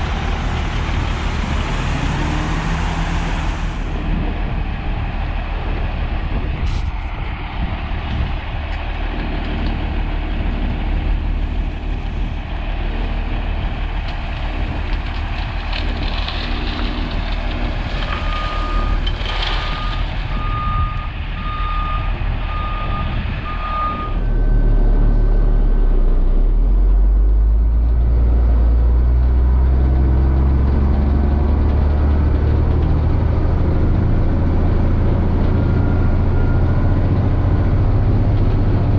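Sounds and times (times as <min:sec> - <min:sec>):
diesel truck engine running: 0:00.0 - 0:38.9
reversing alarm beeping: 0:19.6 - 0:25.0.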